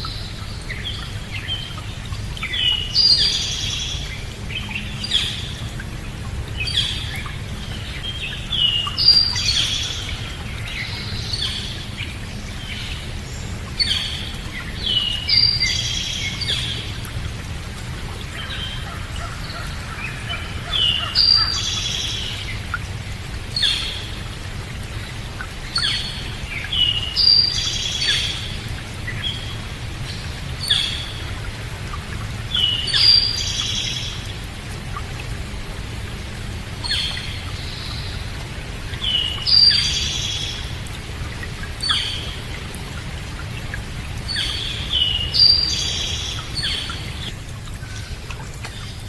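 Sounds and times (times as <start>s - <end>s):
songbirds chirping: 0.0s - 49.0s.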